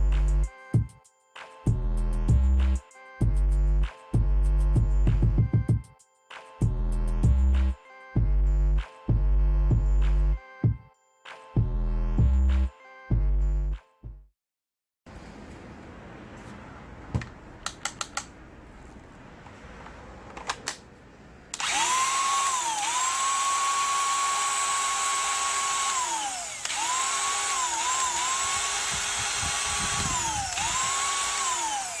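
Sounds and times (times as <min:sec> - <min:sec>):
sharp clicks: 0:17.6 - 0:18.3
angle grinder whine: 0:21.6 - 0:32.0.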